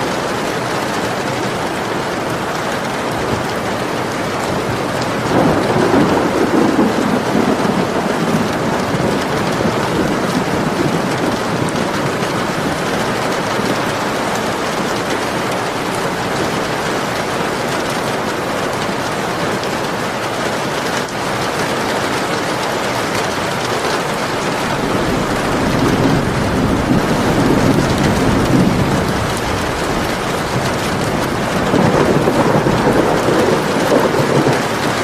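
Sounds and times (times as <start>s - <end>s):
heavy rain falling: 0.0s - 35.0s
thunder rolling: 3.3s - 17.8s, 23.5s - 35.0s.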